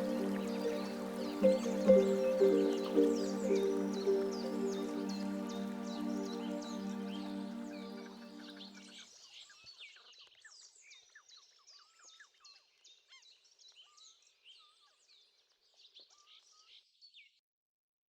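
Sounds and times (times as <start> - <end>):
faint songbirds chirping: 0.0 - 9.0.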